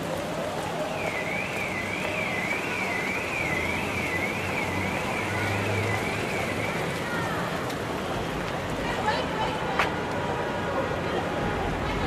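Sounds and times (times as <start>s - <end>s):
electronic siren warbling: 0.9s - 6.8s.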